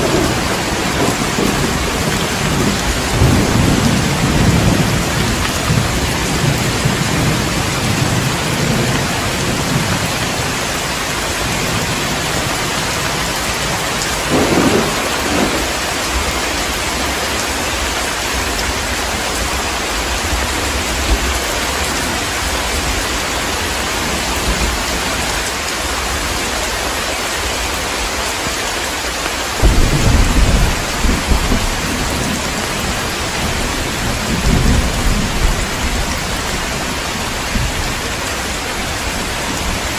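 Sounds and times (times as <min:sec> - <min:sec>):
thunder rumbling: 0:00.0 - 0:19.0, 0:29.6 - 0:39.9
heavy rain falling: 0:00.0 - 0:39.9.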